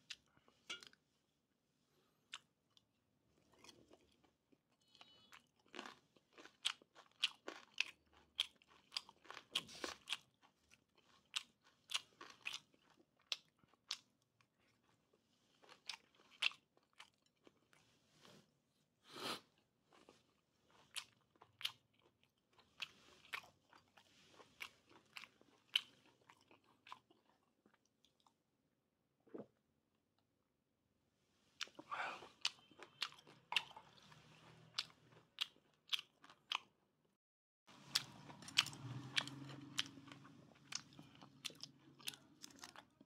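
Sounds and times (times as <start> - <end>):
chewing crunchy cartilage: 3.4 - 17.7, 19.9 - 28.4, 31.6 - 36.7, 37.8 - 43.0.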